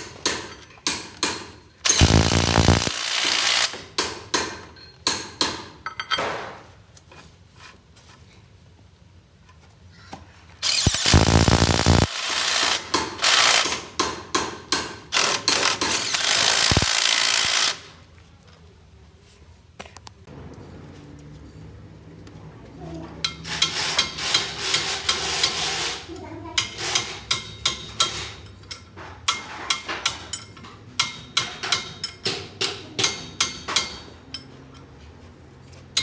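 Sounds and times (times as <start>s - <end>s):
power tool bursts: 1.8s - 3.8s, 10.6s - 13.8s, 15.1s - 17.9s.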